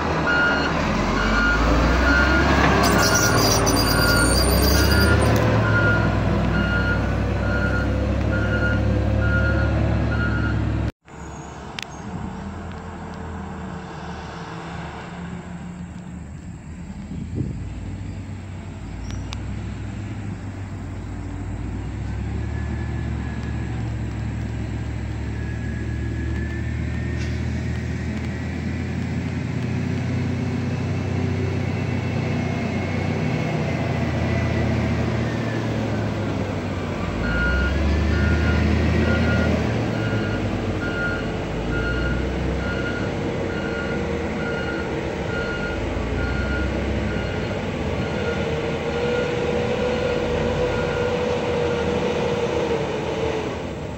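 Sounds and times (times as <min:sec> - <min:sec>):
diesel truck engine rumbling: 0:00.0 - 0:53.9
engine whine: 0:00.0 - 0:53.9
reversing alarm beeping: 0:00.2 - 0:10.7, 0:37.2 - 0:51.2.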